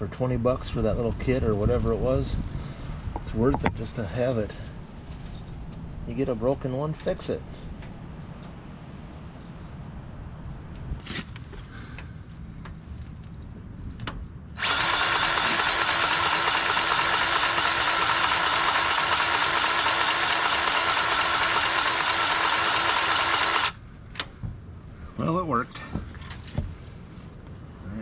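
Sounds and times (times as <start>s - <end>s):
power tool motor running: 14.6s - 23.8s.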